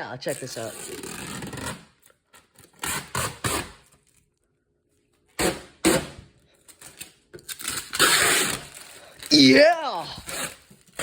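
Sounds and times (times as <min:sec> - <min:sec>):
plastic film ripping: 0:06.7 - 0:11.0.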